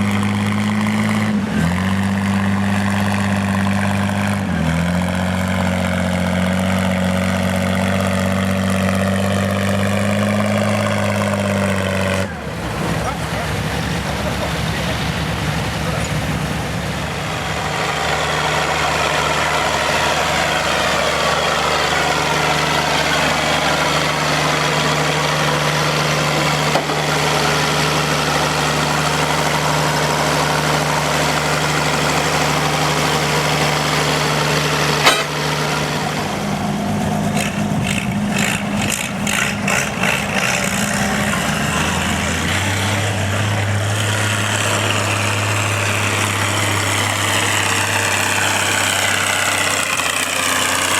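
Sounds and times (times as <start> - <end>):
tractor engine running: 0.0 - 50.9
engine knocking: 17.6 - 41.9, 44.0 - 50.9.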